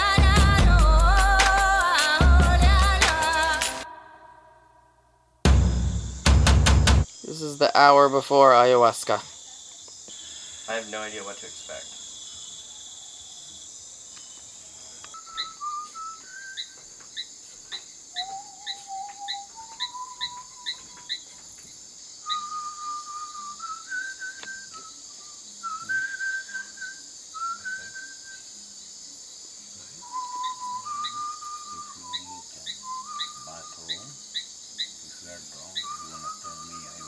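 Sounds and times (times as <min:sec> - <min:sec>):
insects chorus: 0:00.0 - 0:04.2, 0:07.0 - 0:37.0
person whistling a slow melody: 0:15.1 - 0:16.8, 0:18.2 - 0:21.0, 0:22.3 - 0:28.4, 0:30.0 - 0:34.1, 0:35.8 - 0:37.0.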